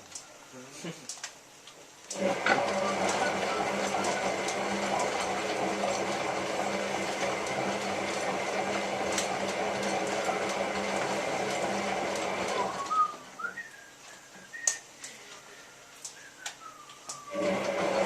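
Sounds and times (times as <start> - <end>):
washing machine running: 2.1 - 13.7, 17.2 - 18.0.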